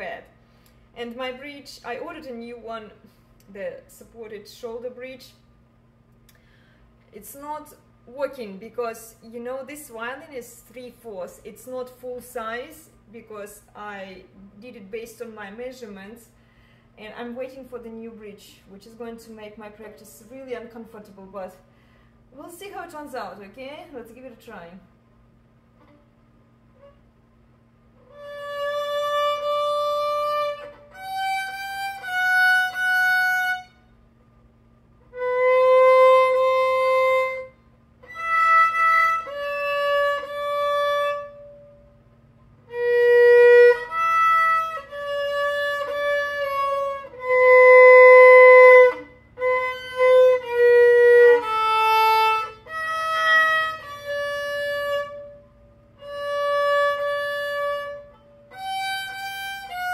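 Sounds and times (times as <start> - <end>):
violin long bowed notes: 28.0 - 33.9, 35.0 - 42.0, 42.7 - 59.9.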